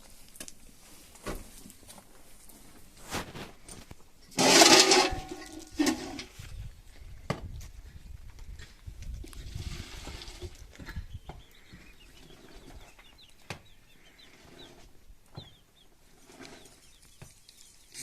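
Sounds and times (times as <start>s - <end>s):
bird chirps: 10.9s - 18.0s.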